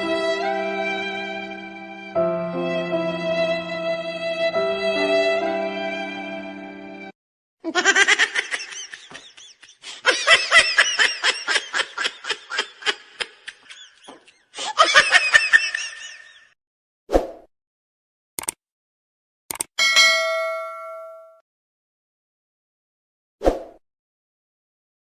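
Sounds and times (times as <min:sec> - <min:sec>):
high-pitched laughter: 0:07.6 - 0:16.6.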